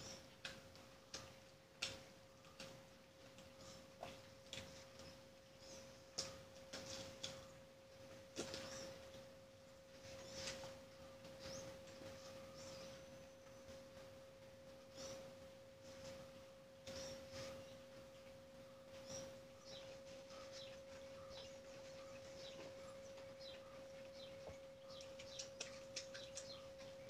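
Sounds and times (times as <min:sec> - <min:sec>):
steady high-pitched hum: 0:03.5 - 0:27.0
wet chewing and lip-smacking: 0:19.7 - 0:27.0.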